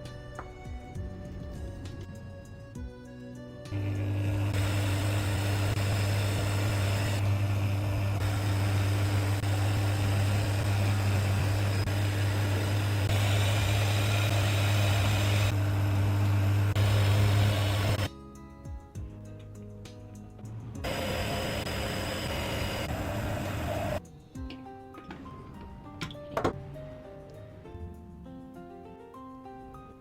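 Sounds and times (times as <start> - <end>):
machine humming and whirring: 3.7 - 18.1, 20.8 - 24.0.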